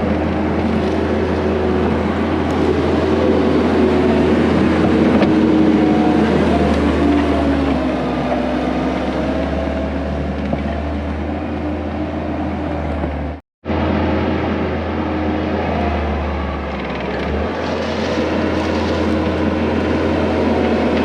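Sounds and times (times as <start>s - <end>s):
skid steer engine droning: 0.0s - 21.0s.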